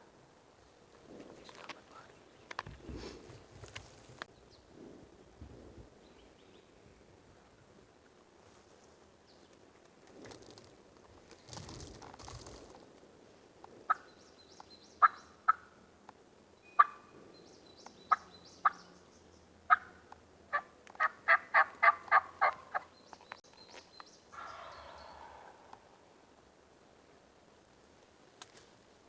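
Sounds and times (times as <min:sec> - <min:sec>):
small birds chirping: 0:01.2 - 0:02.9, 0:13.9 - 0:15.7, 0:16.6 - 0:20.2, 0:21.0 - 0:26.2
turkey clucking and yelping: 0:16.8 - 0:17.0, 0:20.5 - 0:22.9, 0:24.4 - 0:26.0.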